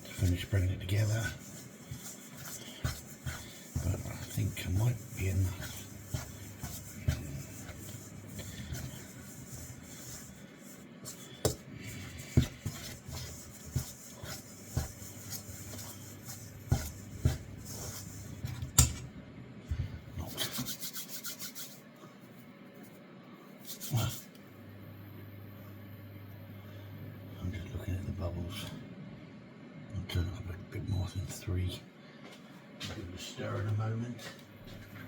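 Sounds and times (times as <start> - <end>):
fork scraping dough in bowl: 0.0 - 19.0.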